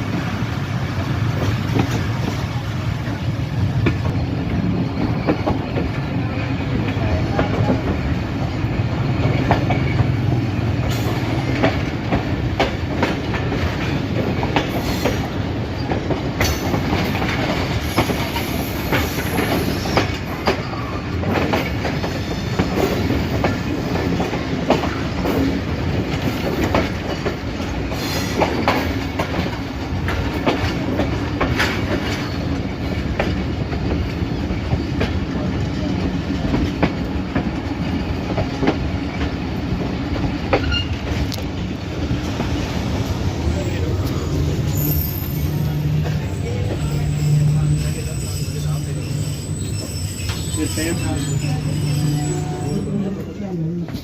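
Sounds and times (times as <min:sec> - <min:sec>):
train wheels clacking over rail joints: 0:00.0 - 0:53.0
train low rumble: 0:00.0 - 0:54.0
faint wheel squeal: 0:44.6 - 0:53.2.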